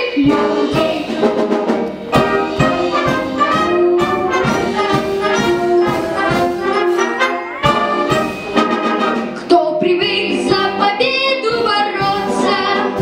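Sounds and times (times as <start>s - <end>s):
orchestral music with brass: 0.0s - 13.0s
steady beat: 0.2s - 9.4s.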